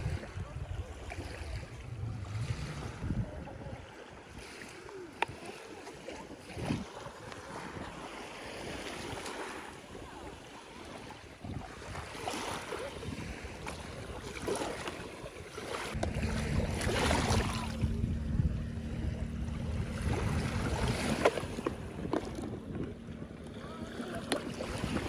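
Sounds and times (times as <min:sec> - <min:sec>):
low steady hum: 0:01.4 - 0:03.8, 0:16.0 - 0:25.0.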